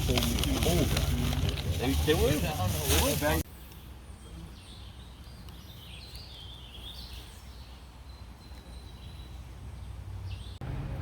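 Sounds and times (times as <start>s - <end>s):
birds chirping and warbling: 0.0s - 10.6s.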